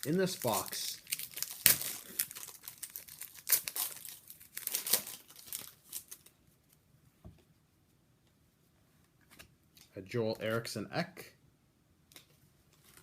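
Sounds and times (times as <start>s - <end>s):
wrapper crumpling and tearing: 0.0s - 6.4s.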